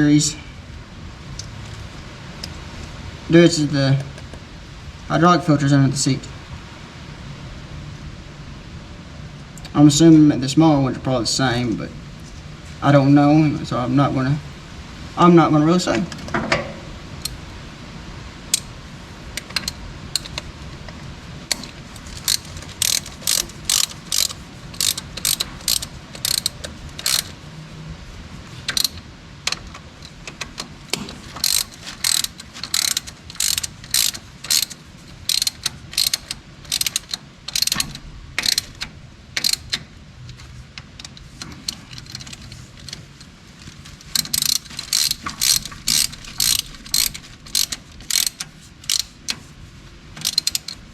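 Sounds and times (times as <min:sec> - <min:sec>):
ratchet wrench clicking: 0:17.2 - 0:17.4, 0:18.5 - 0:18.7, 0:19.4 - 0:20.4, 0:21.5 - 0:27.4, 0:28.7 - 0:29.0, 0:30.9 - 0:39.8, 0:41.1 - 0:43.0, 0:44.0 - 0:49.4, 0:50.2 - 0:50.9.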